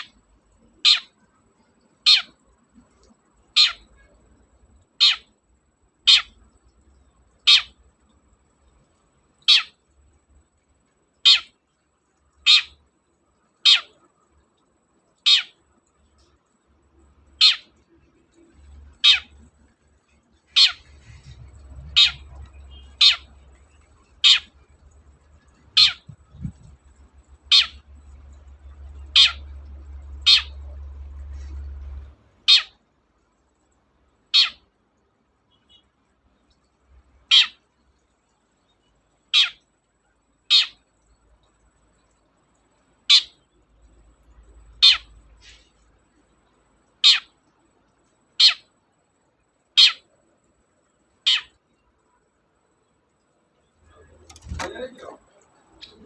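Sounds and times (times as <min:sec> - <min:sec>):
faint low hum: 0:00.0 - 0:56.0
bird giving sharp calls: 0:17.4 - 0:17.7, 0:18.9 - 0:19.4, 0:20.5 - 0:23.3, 0:24.2 - 0:24.6, 0:25.7 - 0:26.6, 0:27.5 - 0:27.8, 0:29.1 - 0:29.5, 0:30.2 - 0:30.6, 0:32.5 - 0:32.8, 0:34.4 - 0:34.6, 0:37.3 - 0:37.6, 0:39.4 - 0:39.6, 0:44.8 - 0:45.7, 0:51.2 - 0:51.6.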